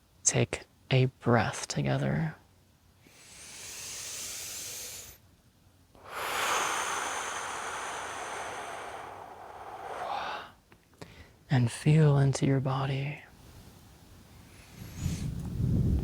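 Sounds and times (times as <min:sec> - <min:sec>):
man breathing deeply: 0:03.0 - 0:05.2, 0:06.0 - 0:11.4, 0:14.4 - 0:15.4.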